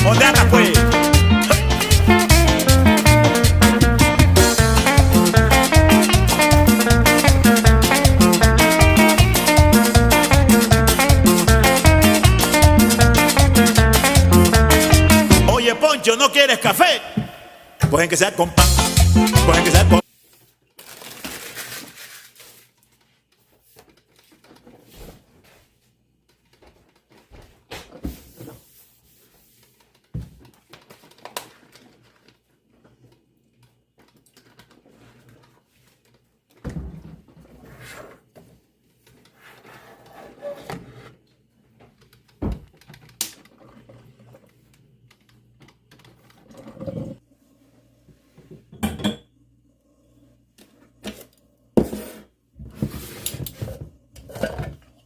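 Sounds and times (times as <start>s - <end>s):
rustling and scraping: 20.0s - 33.2s, 34.4s - 42.1s, 50.6s - 54.8s.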